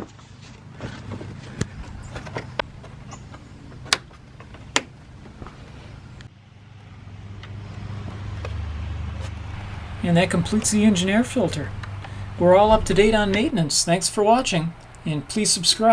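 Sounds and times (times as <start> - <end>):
low steady hum: 0.0 - 15.9
plastic clicks of panel fasteners: 1.6 - 5.0.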